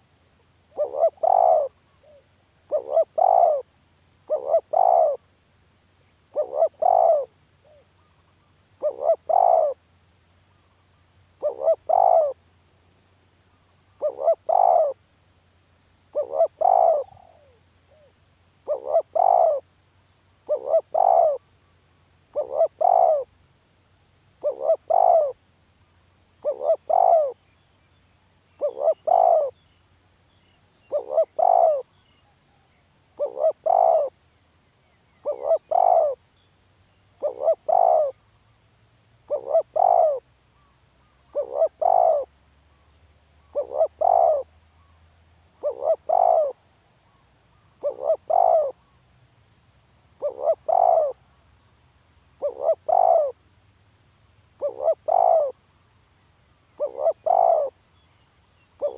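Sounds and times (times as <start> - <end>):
dove cooing: 0.7 - 5.2, 6.3 - 8.1, 8.8 - 9.8, 11.4 - 12.4, 14.0 - 15.0, 16.1 - 19.7, 20.4 - 21.4, 22.3 - 23.3, 24.4 - 25.4, 26.4 - 27.4, 28.6 - 29.6, 30.9 - 32.0, 33.2 - 34.2, 35.2 - 36.2, 37.2 - 38.2, 39.3 - 40.3, 41.3 - 42.3, 43.5 - 44.5, 45.6 - 46.6, 47.8 - 48.8, 50.2 - 51.2, 52.4 - 53.4, 54.6 - 55.6, 56.8 - 57.8.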